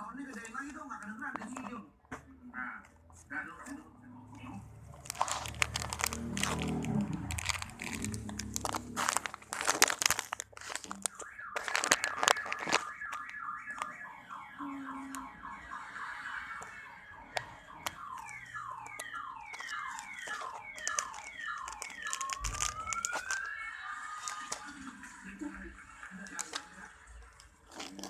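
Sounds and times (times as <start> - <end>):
plastic crinkling: 0.0 - 1.8, 4.9 - 14.0, 16.5 - 28.0
toy siren wailing: 5.1 - 25.1.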